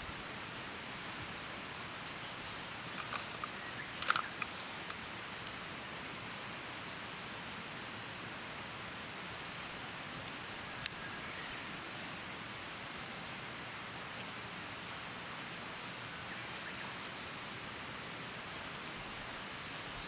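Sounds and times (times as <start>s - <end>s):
fire crackles: 0.1s - 6.0s, 9.0s - 11.4s
twig fire hissing: 9.3s - 11.2s.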